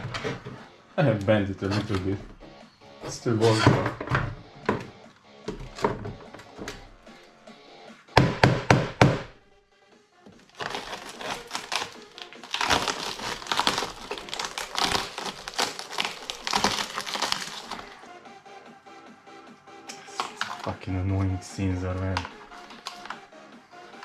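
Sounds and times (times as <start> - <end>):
hard knocks: 8.2 - 9.3
monitor parts cracking and snapping: 10.5 - 17.9, 19.9 - 20.7, 22.1 - 23.2.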